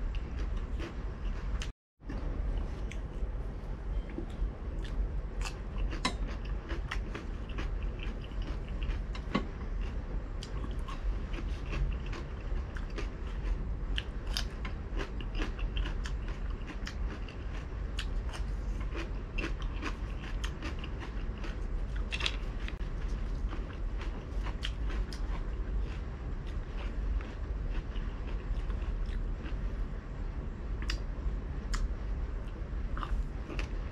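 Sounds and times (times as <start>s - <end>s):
crunchy chewing: 0.0s - 29.9s, 31.7s - 33.9s
low hum: 0.0s - 33.9s.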